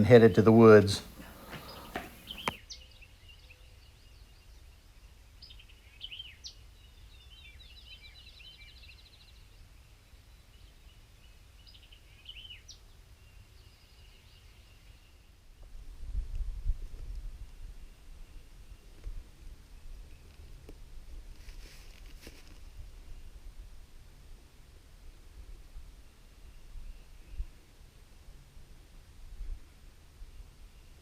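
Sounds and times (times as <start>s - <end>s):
faint songbirds chirping: 0.0s - 15.4s.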